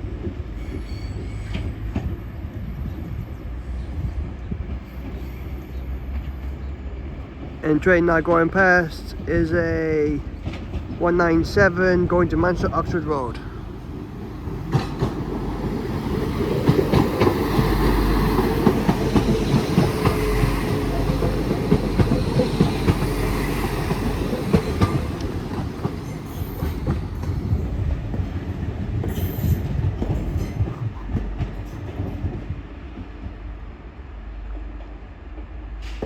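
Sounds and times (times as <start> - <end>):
train passing rumble: 0.0 - 36.0
wheels clicking on rails: 10.3 - 32.6.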